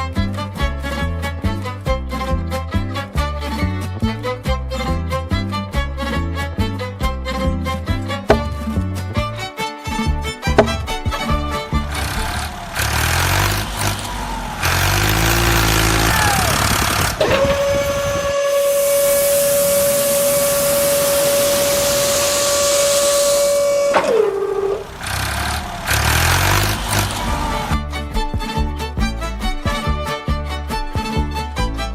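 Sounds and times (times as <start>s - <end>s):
truck engine running: 2.4s - 31.9s
long horn blast: 10.6s - 27.8s
hiss: 18.1s - 25.3s.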